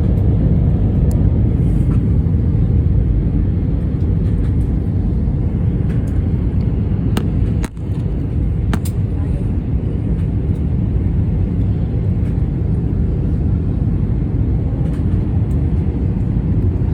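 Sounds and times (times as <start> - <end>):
airliner rumble during landing: 0.0 - 16.9.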